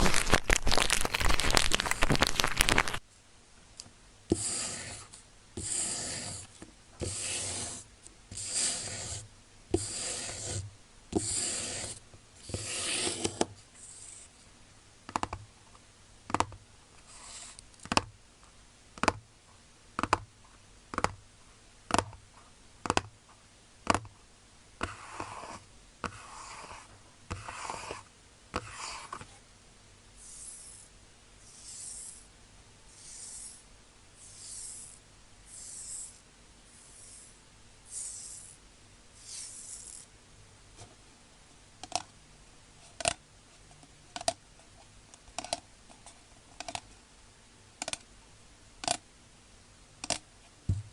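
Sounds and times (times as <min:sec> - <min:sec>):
rustling noise: 0:00.0 - 0:03.1
slow scratching strokes: 0:04.3 - 0:14.5, 0:17.0 - 0:17.6, 0:24.8 - 0:29.4, 0:30.2 - 0:32.3, 0:32.9 - 0:38.6, 0:39.2 - 0:40.1.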